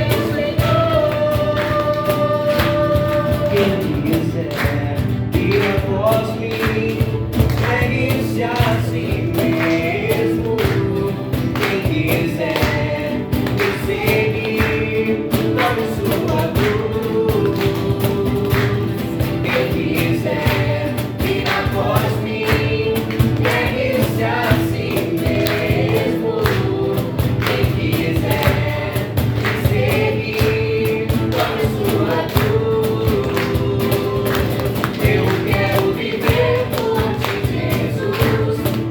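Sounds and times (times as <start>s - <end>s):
choir singing: 0.0s - 4.6s, 8.4s - 38.9s
band with steady beat: 0.0s - 38.9s.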